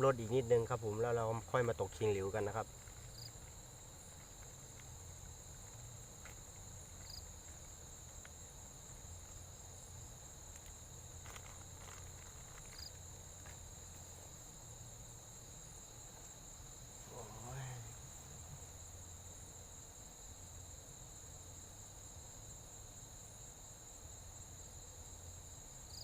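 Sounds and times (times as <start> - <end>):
faint insect chorus trilling: 0.0 - 26.0.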